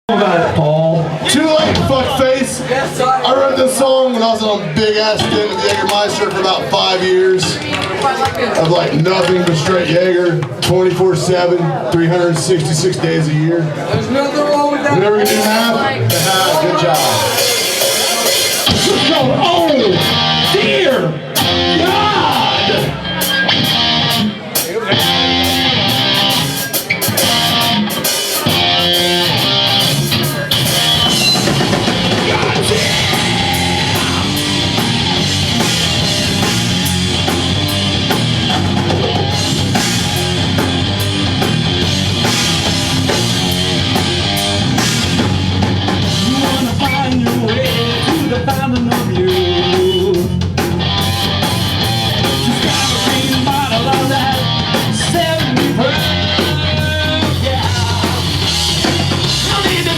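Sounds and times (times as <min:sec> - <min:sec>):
drum kit beat: 0:14.9 - 0:59.9
bass guitar: 0:15.0 - 0:59.9
distorted electric guitars: 0:15.1 - 0:59.9.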